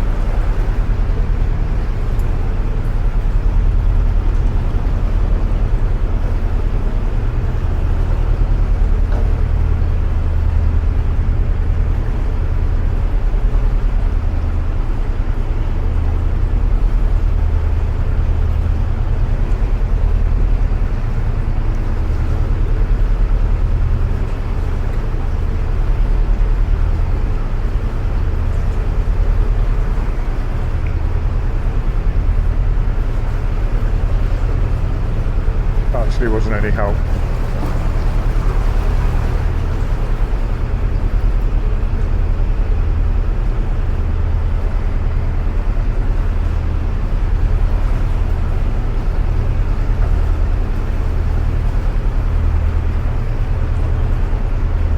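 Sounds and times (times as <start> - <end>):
boat engine throbbing: 0.0 - 54.9.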